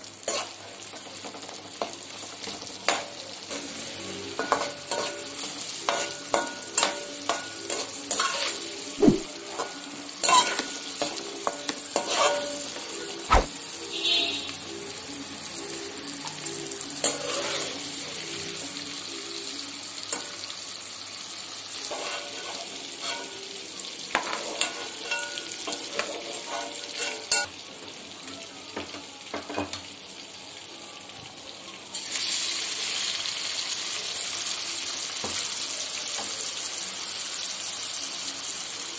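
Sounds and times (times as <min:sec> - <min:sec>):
onion sizzling in hot oil: 0:00.0 - 0:38.9
metal spoon scraping a wok: 0:00.3 - 0:00.6, 0:11.9 - 0:12.7, 0:17.0 - 0:18.0, 0:21.8 - 0:23.4.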